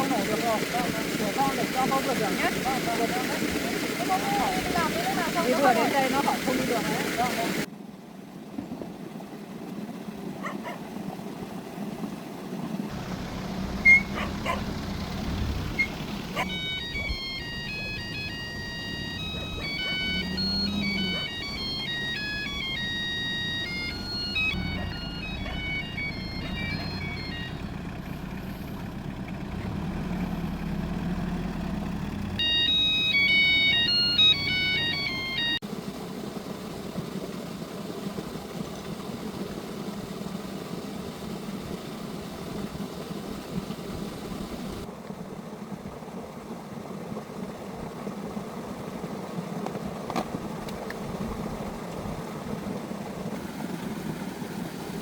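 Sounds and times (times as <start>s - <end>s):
electronic jingle of high notes: 15.7s - 27.7s, 32.4s - 35.6s.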